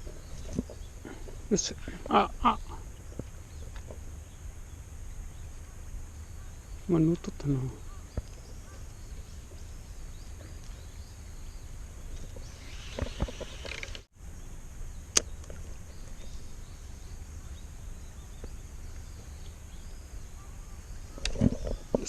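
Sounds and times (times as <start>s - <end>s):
wind rumble on microphone: 7.8s - 22.0s
sharp click: 15.1s - 15.6s.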